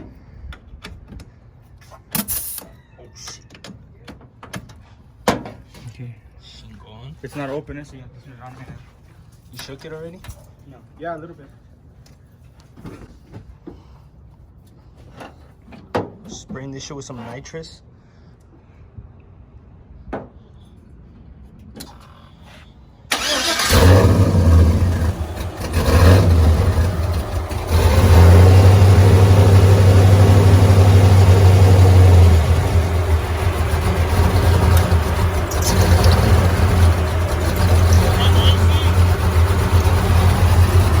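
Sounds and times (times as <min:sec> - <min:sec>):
truck engine starting and revving: 0:23.1 - 0:41.0.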